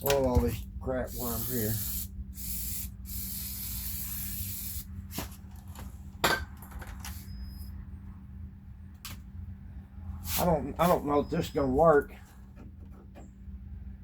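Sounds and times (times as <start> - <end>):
spray hissing: 1.1 - 4.8.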